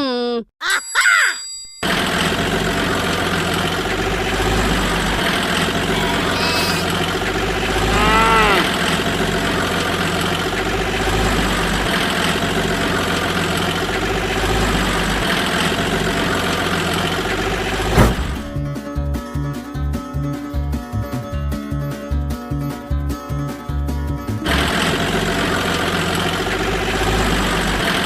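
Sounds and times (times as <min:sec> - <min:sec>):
engine running: 0:01.8 - 0:18.7, 0:24.2 - 0:28.0
rising and falling call: 0:05.8 - 0:07.0.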